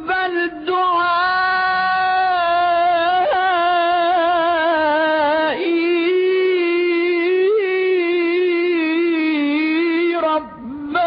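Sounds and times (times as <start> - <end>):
person reciting with vibrato: 0.0 - 11.0.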